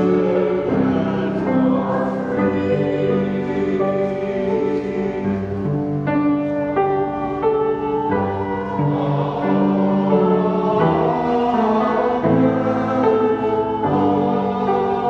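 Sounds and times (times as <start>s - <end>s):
church choir singing: 0.0s - 15.0s.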